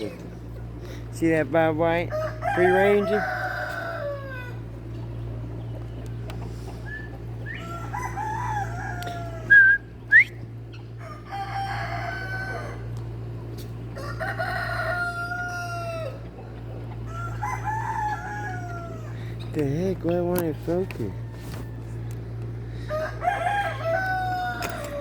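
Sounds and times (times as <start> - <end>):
roosters crowing: 0.0 - 25.0
whistled bird notes: 9.5 - 10.4.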